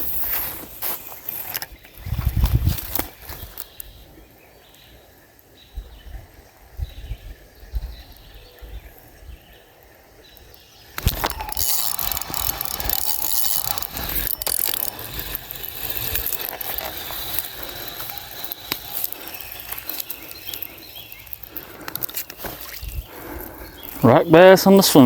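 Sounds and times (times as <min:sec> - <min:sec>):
fishing reel whirring and clicking: 0:00.0 - 0:03.7, 0:10.9 - 0:24.1.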